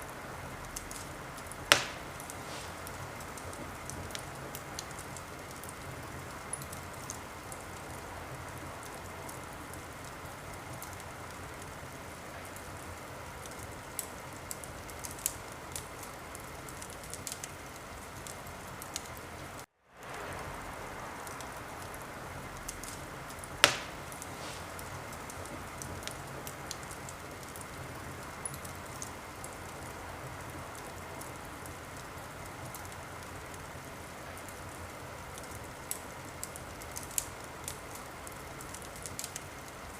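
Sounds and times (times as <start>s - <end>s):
wood fire crackling: 0.0s - 39.9s
loud sharp pop: 1.7s - 2.8s, 23.6s - 24.8s.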